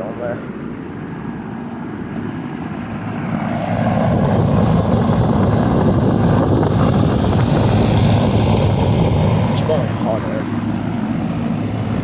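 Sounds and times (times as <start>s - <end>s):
condenser fan whoosh: 2.7s - 12.0s.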